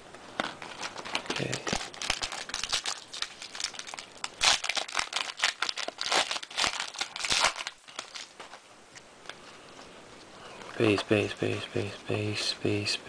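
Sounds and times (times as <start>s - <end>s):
plastic wrapper tearing and crinkling: 0.2s - 8.6s.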